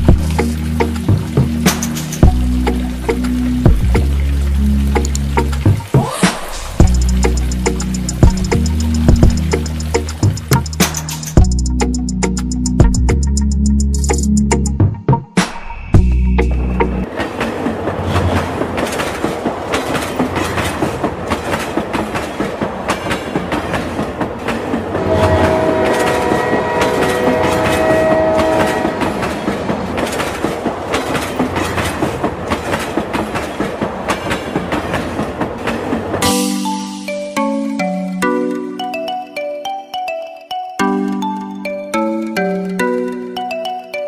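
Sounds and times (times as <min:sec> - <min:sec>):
wheels clicking over rail joints: 0:00.0 - 0:12.6, 0:16.4 - 0:36.4
train horn: 0:24.9 - 0:29.9.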